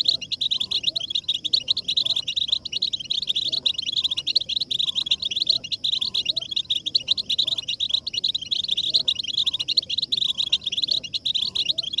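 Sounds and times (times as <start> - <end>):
flock of finches twittering: 0.0 - 12.0.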